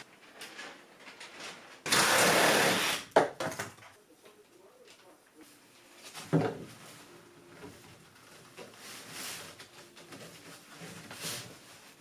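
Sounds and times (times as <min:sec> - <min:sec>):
scraping rustle: 0:07.7 - 0:12.0.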